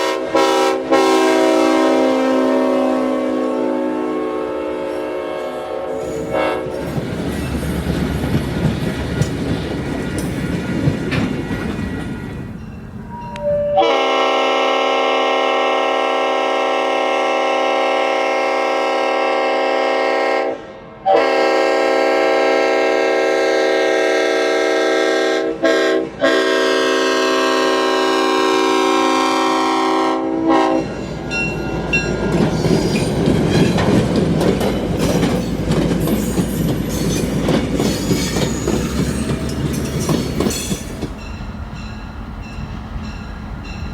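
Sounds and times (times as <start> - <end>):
locomotive chime horn blasts: 0.0 - 7.0, 13.1 - 32.1
train rumbling past: 0.0 - 43.9
wheels clicking over rail joints: 6.0 - 12.5, 31.8 - 41.3.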